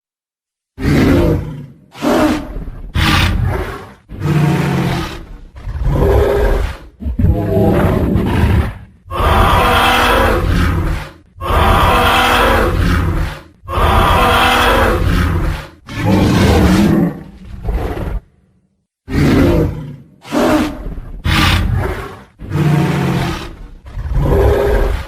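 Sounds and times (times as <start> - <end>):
deep rumbling dinosaur roars: 0.8 - 18.4, 19.1 - 25.0.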